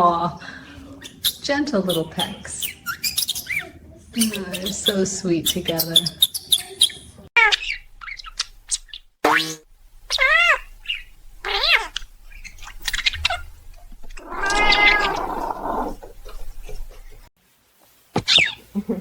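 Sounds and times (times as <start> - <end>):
cat meowing: 14.2 - 16.1.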